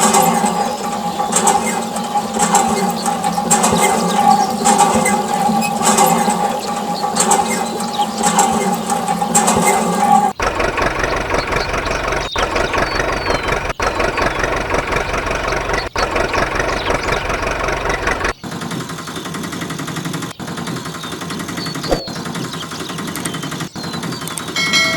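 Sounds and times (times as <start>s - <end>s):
motor running: 10.4s - 18.4s.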